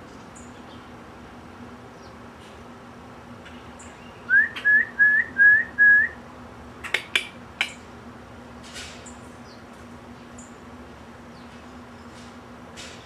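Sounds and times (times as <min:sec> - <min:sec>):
faint steady hum: 0:00.0 - 0:13.0
songbird whistling rising notes: 0:04.2 - 0:06.2.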